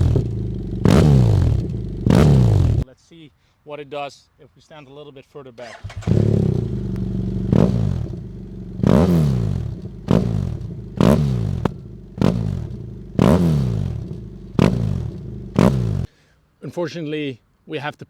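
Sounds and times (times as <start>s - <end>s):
motorcycle engine throttle blips: 0.0s - 2.8s, 5.6s - 16.1s.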